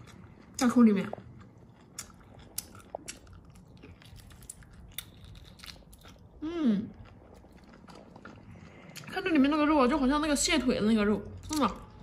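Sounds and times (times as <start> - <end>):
wet chewing clicks and smacks: 0.0 - 6.3.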